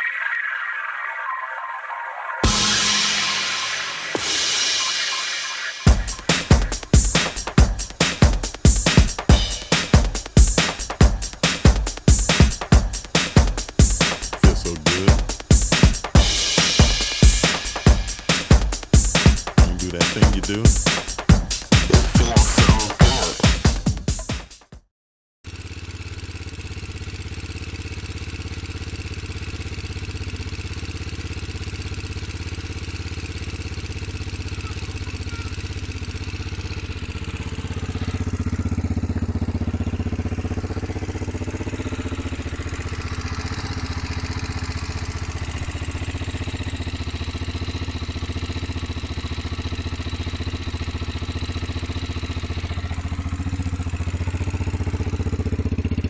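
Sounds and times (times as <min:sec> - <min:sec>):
motorcycle engine running steadily: 0:05.9 - 0:20.6, 0:25.5 - 0:56.0.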